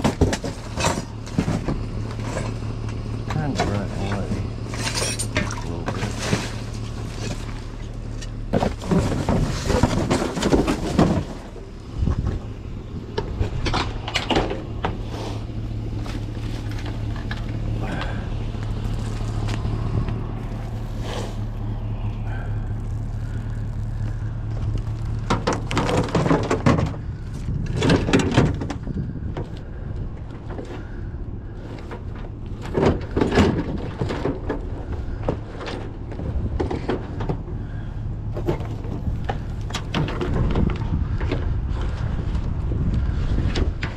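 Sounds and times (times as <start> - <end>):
rustling and knocking handling noise: 0.0 - 3.0, 3.6 - 12.5, 23.0 - 30.8, 38.3 - 43.9
vehicle engine humming: 0.0 - 43.9.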